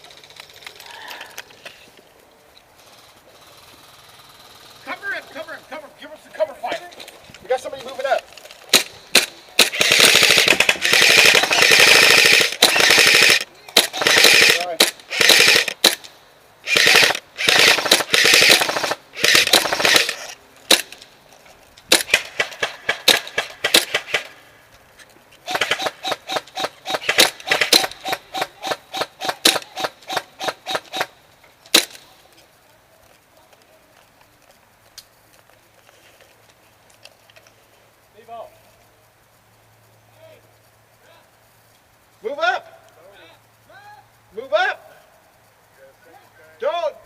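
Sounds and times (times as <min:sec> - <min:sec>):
airsoft gun single shots: 0:08.7 - 0:16.1, 0:16.7 - 0:21.0, 0:21.9 - 0:24.4, 0:25.5 - 0:31.1, 0:31.7 - 0:32.0
airsoft gun full-auto bursts: 0:08.7 - 0:21.0, 0:21.9 - 0:24.4, 0:25.4 - 0:32.0.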